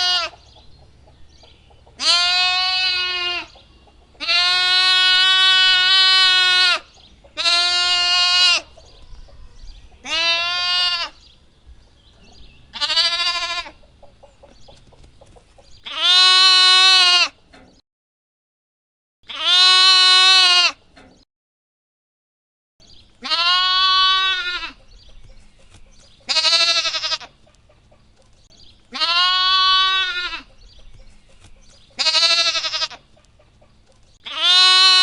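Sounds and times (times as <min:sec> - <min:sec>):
lamb bleating: 0:00.0 - 0:00.4, 0:02.0 - 0:03.6, 0:04.2 - 0:08.7, 0:10.0 - 0:11.2, 0:12.7 - 0:13.8, 0:15.9 - 0:17.4, 0:19.3 - 0:20.8, 0:23.2 - 0:24.8, 0:26.3 - 0:27.3, 0:28.9 - 0:30.5, 0:32.0 - 0:33.0, 0:34.2 - 0:35.0.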